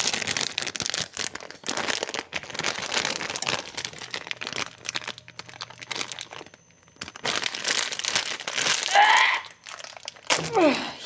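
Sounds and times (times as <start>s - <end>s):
crinkling and rustling: 0.0s - 10.8s.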